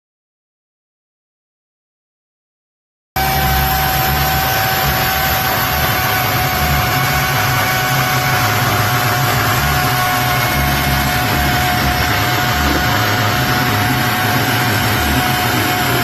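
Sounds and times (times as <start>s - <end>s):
electric chainsaw whining: 3.2s - 16.0s.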